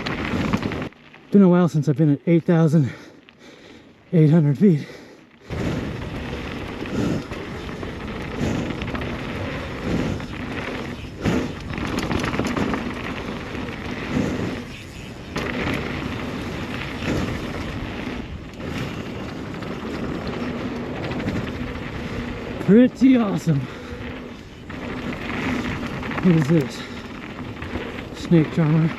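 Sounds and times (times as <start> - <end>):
tyres rolling on dirt: 0.0 - 28.9
bike knocking on bumps: 5.5 - 23.2.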